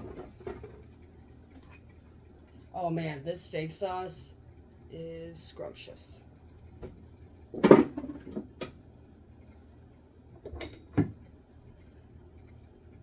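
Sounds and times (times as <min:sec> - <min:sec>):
bottles set down on shelves: 0:07.6 - 0:08.5.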